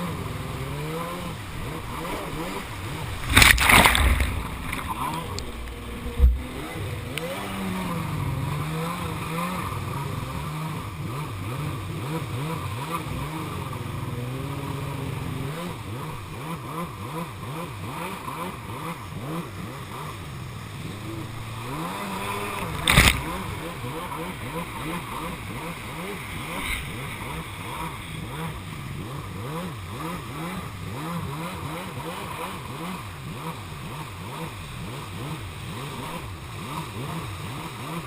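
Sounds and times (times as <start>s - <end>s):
jet ski engine revving: 0.0s - 38.0s
short thump: 3.2s - 5.0s, 5.6s - 6.5s, 22.6s - 23.3s.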